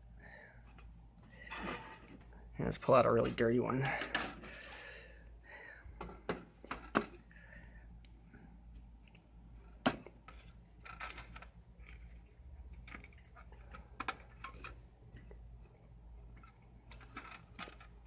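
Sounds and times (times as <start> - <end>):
low steady hum: 0.0 - 18.0
metal and plastic parts clattering: 1.3 - 2.3, 3.2 - 4.8, 9.8 - 15.4, 16.3 - 18.0.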